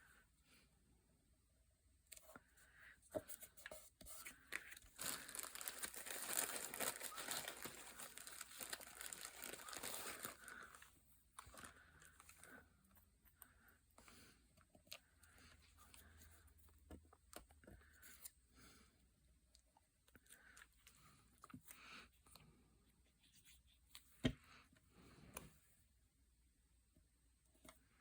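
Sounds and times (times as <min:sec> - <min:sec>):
paper crinkling and rustling: 0:03.6 - 0:10.8.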